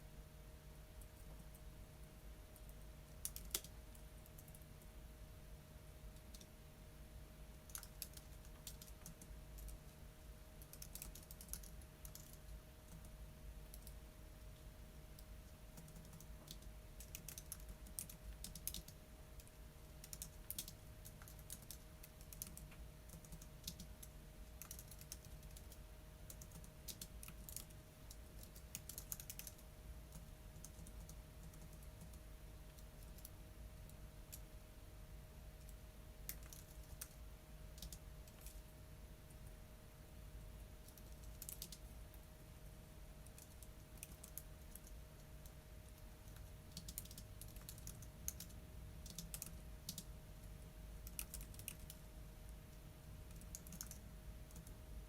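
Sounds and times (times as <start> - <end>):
low steady hum: 0.0 - 55.0
typing on computer keyboard: 2.6 - 4.6, 7.6 - 9.9, 10.6 - 14.0, 15.2 - 33.3, 35.6 - 37.2, 37.8 - 38.6, 40.8 - 41.9, 43.2 - 45.6, 46.2 - 50.1, 51.0 - 52.0, 53.3 - 54.8.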